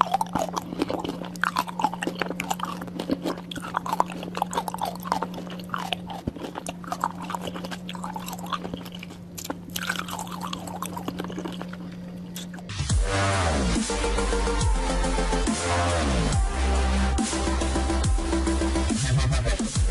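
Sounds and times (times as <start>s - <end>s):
close-miked eating and chewing: 0.0s - 13.0s
steady low hum: 0.0s - 19.9s.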